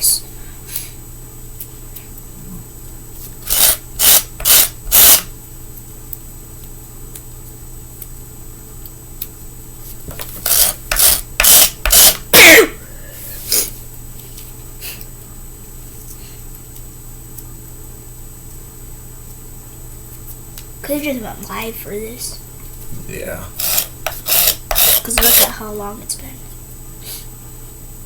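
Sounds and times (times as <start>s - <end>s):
rasping strokes on grip tape: 3.4s - 5.3s, 10.1s - 12.2s, 23.6s - 25.5s.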